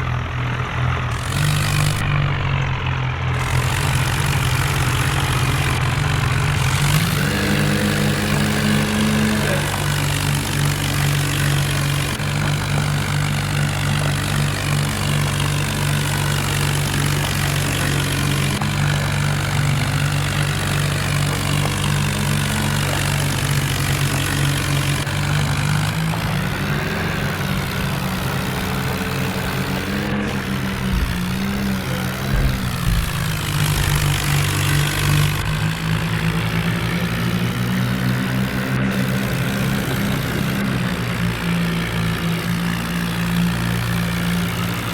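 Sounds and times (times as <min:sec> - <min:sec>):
tractor engines under load: 0:00.0 - 0:44.9.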